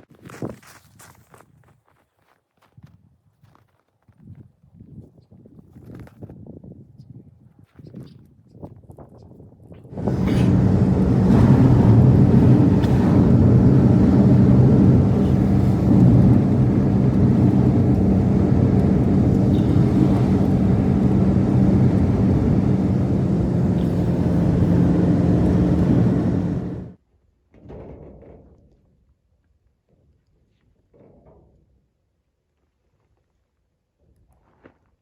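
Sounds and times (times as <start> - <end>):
engine running steadily: 9.9 - 27.0.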